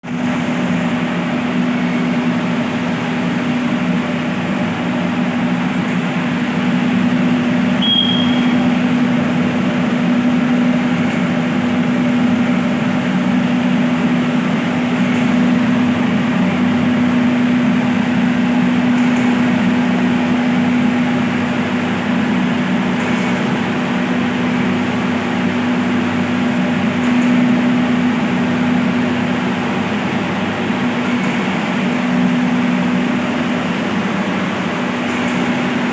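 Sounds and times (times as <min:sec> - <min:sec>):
water pump motors humming: 0:00.1 - 0:35.9
short high tone: 0:07.8 - 0:08.6.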